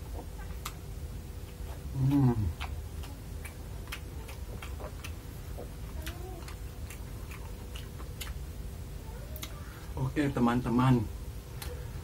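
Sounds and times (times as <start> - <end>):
chewing with wet mouth clicks: 0.2 - 0.8, 1.4 - 8.6, 9.3 - 9.6
man humming mmm: 1.9 - 2.7.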